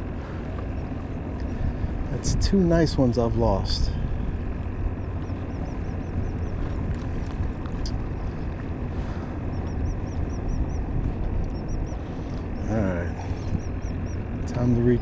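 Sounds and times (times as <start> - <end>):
low wind rumble on microphone: 0.0 - 15.0
bird chirping: 4.7 - 15.0.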